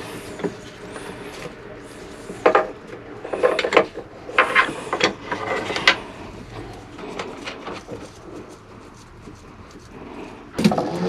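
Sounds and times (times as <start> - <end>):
hard parts clicking and rattling: 0.0 - 11.0.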